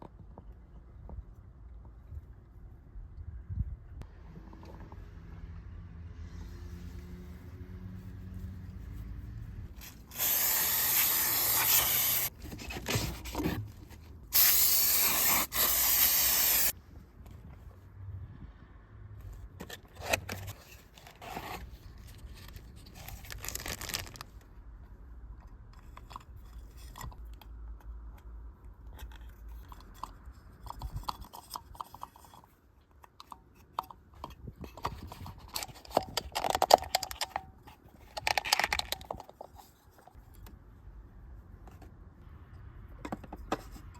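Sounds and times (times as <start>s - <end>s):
hissing spray: 10.1s - 12.3s, 14.4s - 16.7s
scrapes and clicks of work: 19.6s - 24.3s, 25.4s - 40.6s.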